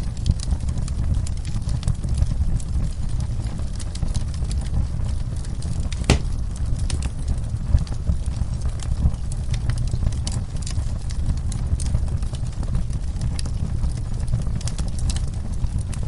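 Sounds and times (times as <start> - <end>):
sharp crack of fire: 0.0 - 16.0
wood fire crackling: 0.0 - 16.0.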